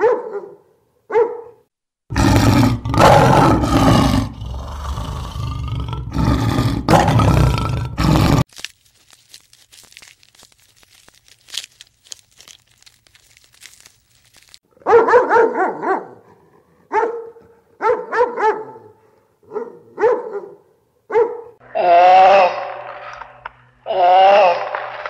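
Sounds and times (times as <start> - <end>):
puppy yipping: 0.0 - 1.5.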